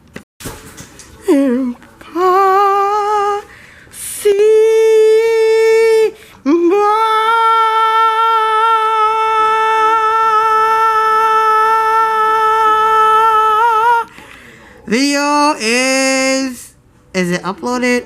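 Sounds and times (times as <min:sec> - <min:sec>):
singer breathing: 0:03.5 - 0:04.0, 0:14.1 - 0:14.9.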